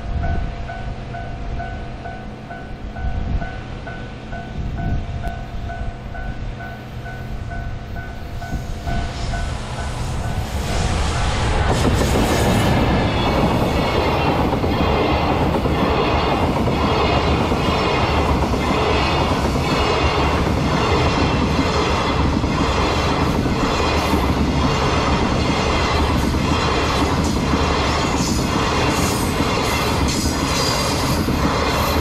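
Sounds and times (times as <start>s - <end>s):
train wheels clacking over track: 7.0s - 32.0s.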